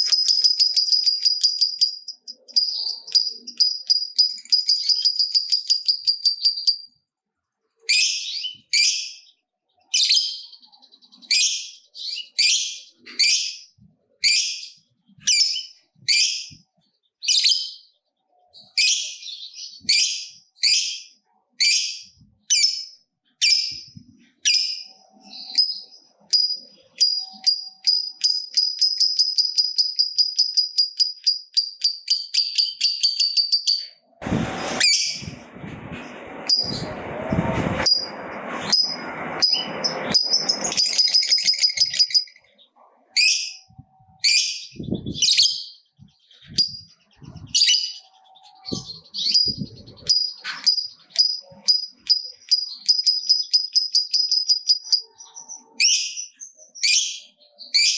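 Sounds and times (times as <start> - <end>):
lovebird chattering and trilling: 0.0 - 6.9, 18.6 - 34.0, 38.7 - 57.9
loud rushing noise: 34.2 - 40.9.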